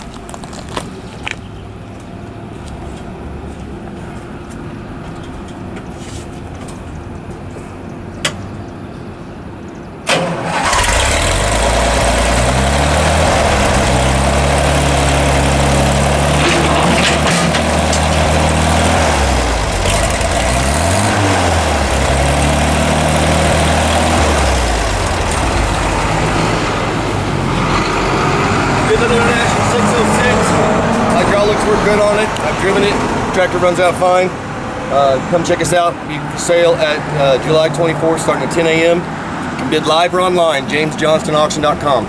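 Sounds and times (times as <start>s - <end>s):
tractor engine starting and running: 10.0s - 42.0s.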